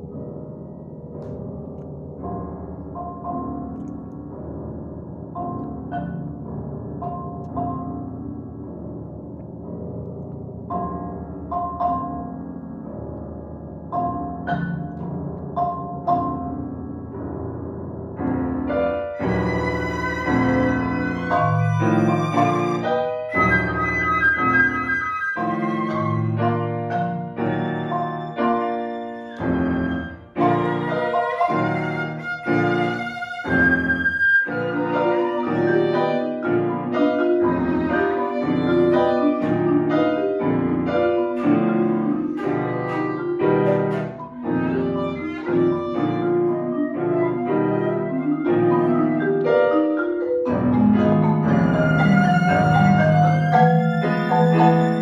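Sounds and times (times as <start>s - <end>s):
piano: 0.0s - 55.0s
flute: 19.1s - 40.2s, 41.0s - 55.0s
violin: 19.2s - 49.8s, 50.8s - 55.0s
marimba: 47.9s - 55.0s.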